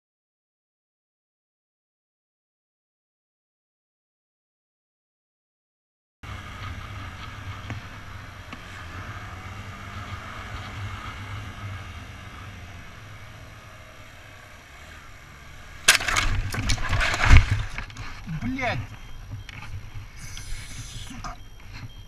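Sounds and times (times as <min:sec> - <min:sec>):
vehicle road rumble: 0:06.2 - 0:22.0.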